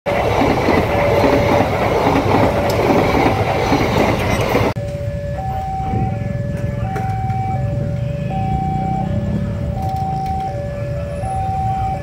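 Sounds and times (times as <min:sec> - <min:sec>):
train wheels clattering on rail: 0:00.1 - 0:04.8
street noise: 0:00.1 - 0:12.0
electronic tune of alternating tones: 0:04.8 - 0:12.0.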